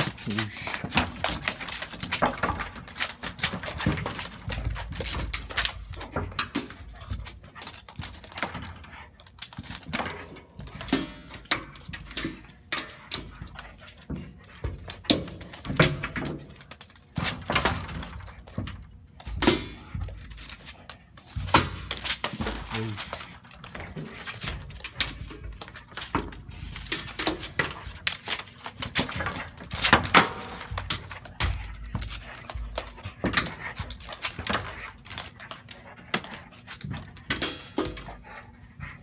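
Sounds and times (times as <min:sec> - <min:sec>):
animal breathing: 0:00.0 - 0:01.1, 0:30.7 - 0:39.0.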